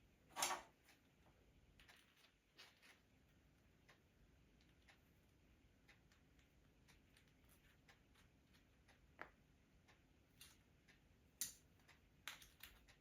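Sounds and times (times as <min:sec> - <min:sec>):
faint regular ticking: 0:00.8 - 0:13.0.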